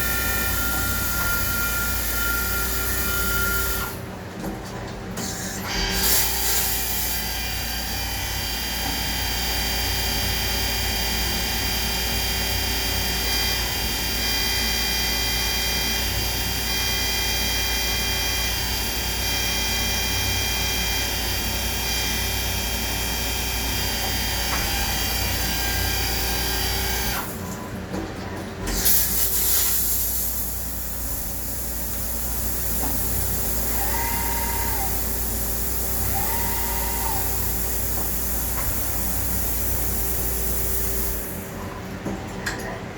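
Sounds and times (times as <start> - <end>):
lathe spindle whine: 0.0 - 3.9
axis motors whining: 33.6 - 35.2, 35.9 - 37.6.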